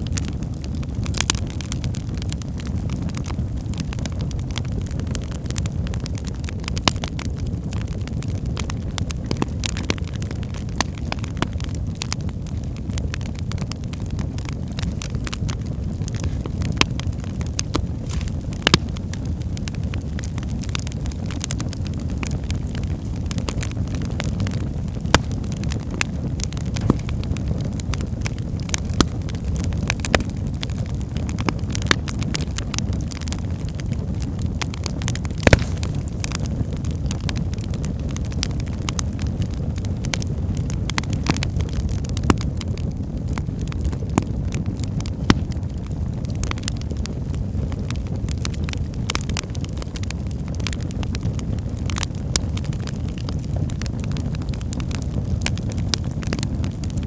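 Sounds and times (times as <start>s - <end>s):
fire crackling and popping: 0.0s - 57.0s
low rumble of flames: 0.0s - 57.0s.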